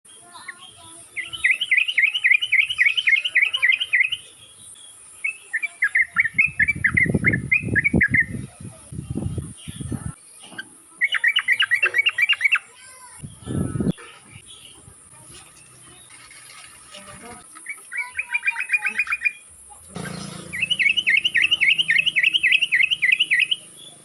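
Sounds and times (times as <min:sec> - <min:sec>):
low thumps and rumbling: 0:19.9 - 0:22.7
bulbul bubbly chirping song: 0:20.5 - 0:24.0.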